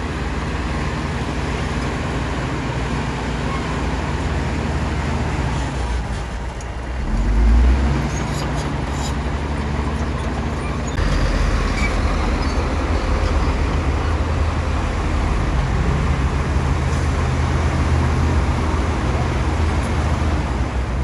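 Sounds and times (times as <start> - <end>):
bulldozer diesel engine rumbling: 0.0 - 21.0.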